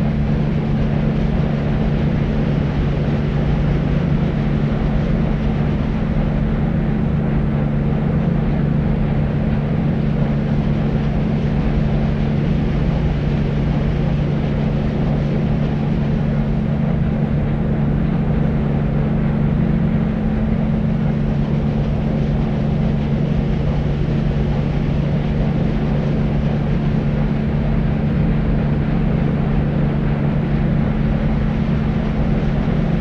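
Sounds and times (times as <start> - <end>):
deep white noise: 0.0 - 33.0.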